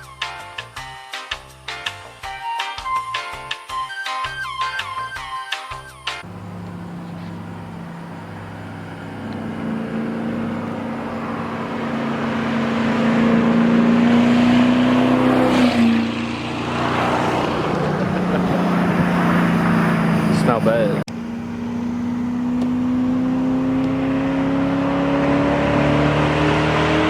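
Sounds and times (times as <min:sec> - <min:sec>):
car engine accelerating: 0:06.2 - 0:27.0.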